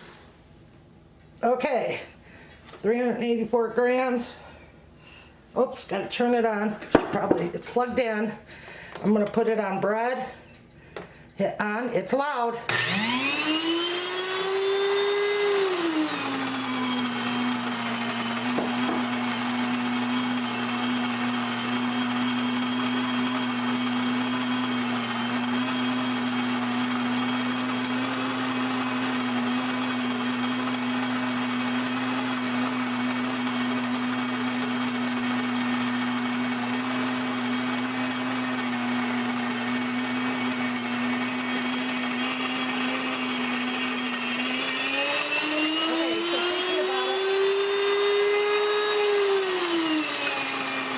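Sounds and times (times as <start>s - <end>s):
grain mill motor whine: 12.7s - 50.9s.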